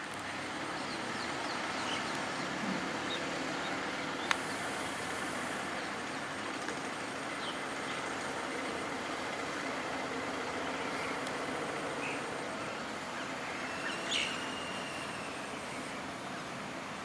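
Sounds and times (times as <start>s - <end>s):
outdoor background noise: 0.0s - 17.0s
bird chirps: 11.9s - 16.0s.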